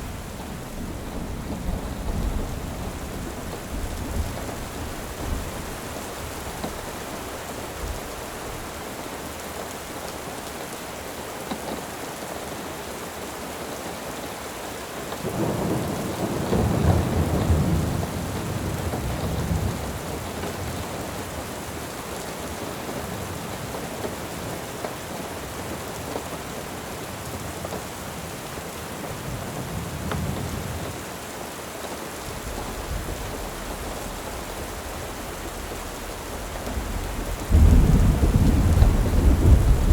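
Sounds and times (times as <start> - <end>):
thunder rumbling: 0.0 - 7.0, 32.3 - 39.9
steady rain falling: 0.0 - 39.9.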